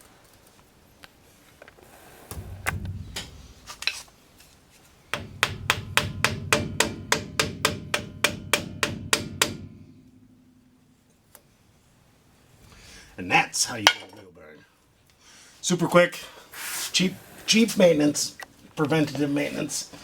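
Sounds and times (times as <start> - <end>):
hammer tapping metal: 2.3 - 4.1, 5.1 - 11.4
knocks: 2.3 - 4.2, 5.1 - 11.2.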